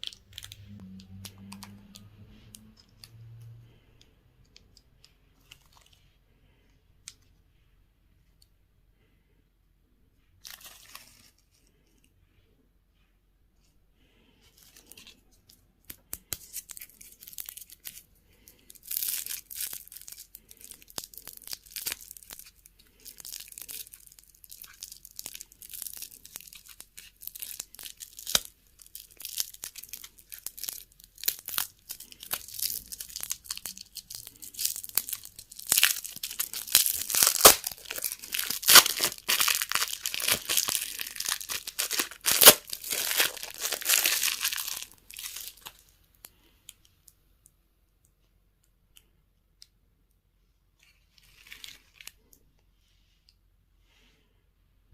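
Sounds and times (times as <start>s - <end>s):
plastic candy packaging crinkling: 0.0s - 3.2s, 10.4s - 11.7s, 14.5s - 46.8s, 50.8s - 52.4s.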